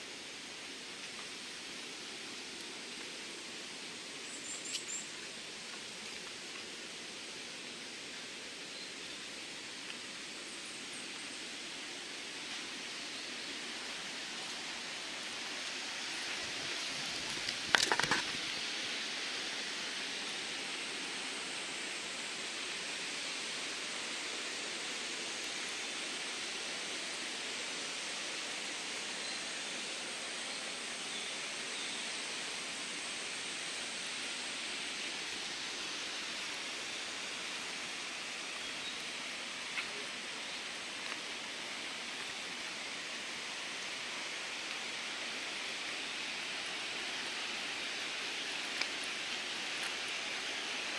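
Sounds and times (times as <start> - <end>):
river water rushing: 11.4 - 50.9.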